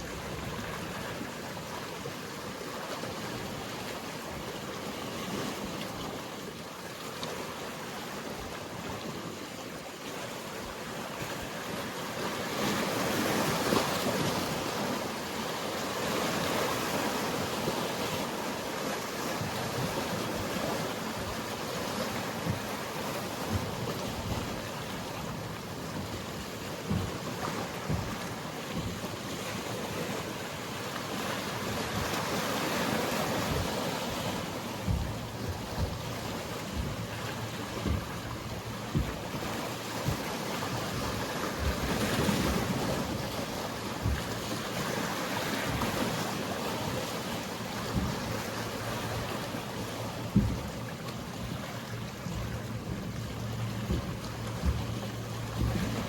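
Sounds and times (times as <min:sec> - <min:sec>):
sea waves breaking on shore: 0:00.0 - 0:56.0
wind buffeting microphone: 0:31.5 - 0:56.0.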